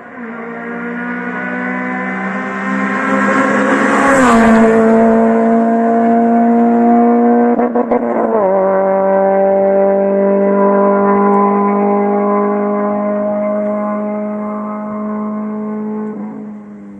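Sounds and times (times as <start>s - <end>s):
car engine revving hard: 0.0s - 16.9s.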